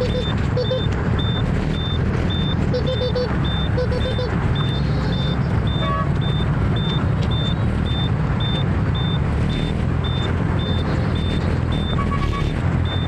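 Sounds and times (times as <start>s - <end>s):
motor scooter engine: 0.0s - 0.9s
high electronic beep: 0.0s - 13.0s
road noise: 0.0s - 13.0s
horn honk: 2.7s - 4.4s, 5.8s - 6.1s, 12.0s - 12.6s.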